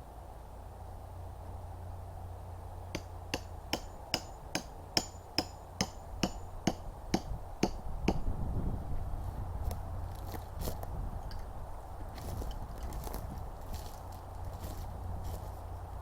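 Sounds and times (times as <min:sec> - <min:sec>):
hammer strikes with ringing tone: 0:03.0 - 0:08.2.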